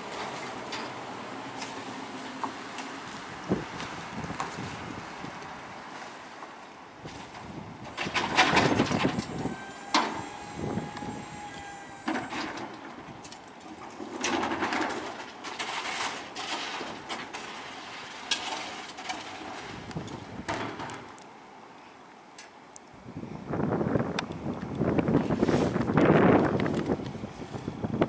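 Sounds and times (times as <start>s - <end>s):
knocks and metal clatter: 7.1s - 10.3s, 11.6s - 21.2s
steady high squeal: 9.0s - 12.4s.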